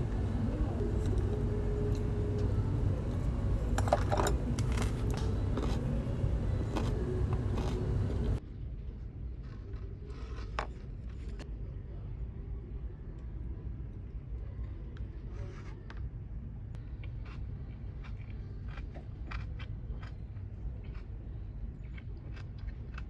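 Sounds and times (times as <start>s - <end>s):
low rumble of moving vehicle: 0.0s - 8.4s
small clinks and scrapes: 0.0s - 8.4s.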